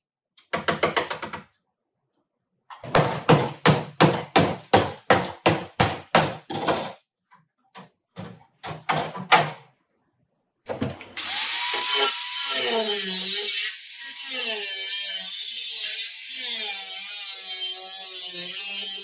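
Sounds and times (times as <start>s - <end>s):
handheld power tool running: 11.2s - 19.0s.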